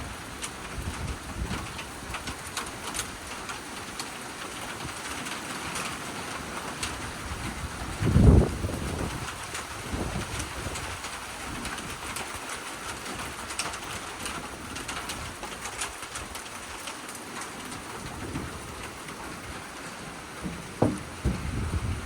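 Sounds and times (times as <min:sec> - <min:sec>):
storm wind: 0:00.0 - 0:03.6, 0:06.8 - 0:16.8, 0:17.6 - 0:22.0
rain drops pattering: 0:00.0 - 0:22.0
sharp knock: 0:20.4 - 0:21.7.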